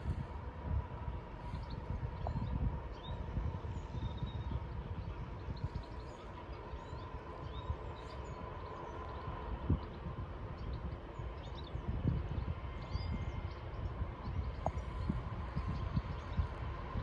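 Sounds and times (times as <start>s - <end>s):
faint whine: 0.0s - 17.0s.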